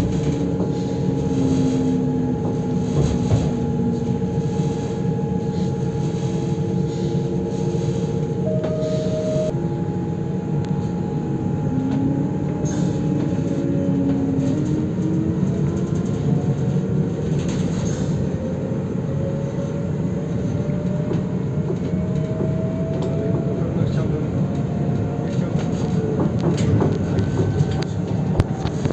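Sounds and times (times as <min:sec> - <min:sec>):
whining tones: 0:00.0 - 0:16.1
train rumbling: 0:00.0 - 0:28.9.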